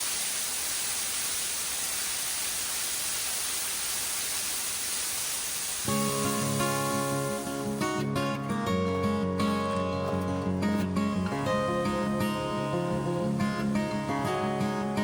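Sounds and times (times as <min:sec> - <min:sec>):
steady hissing noise: 0:00.0 - 0:15.0
strummed acoustic guitar music: 0:05.8 - 0:15.0.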